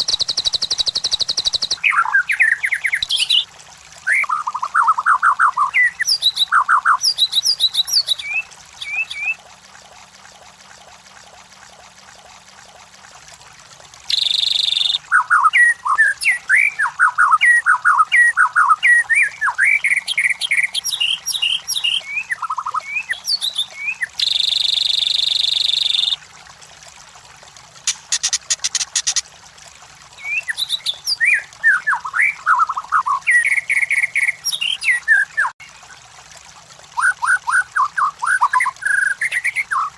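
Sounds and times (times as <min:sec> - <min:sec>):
songbird whistling: 0:00.0 - 0:03.4, 0:04.1 - 0:09.4, 0:14.1 - 0:26.2
dry bird rattle: 0:27.9 - 0:29.2.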